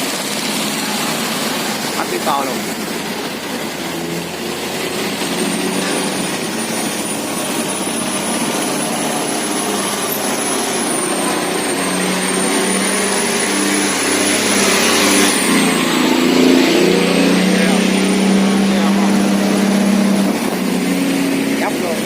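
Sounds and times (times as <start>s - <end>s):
barge diesel engine running: 0.0s - 22.0s
thin high whine: 0.0s - 22.0s.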